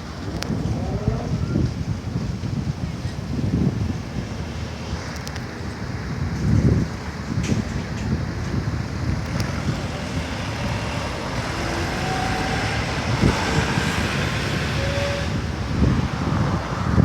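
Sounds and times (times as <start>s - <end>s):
road noise: 0.0s - 17.0s
sports car engine: 7.6s - 17.0s.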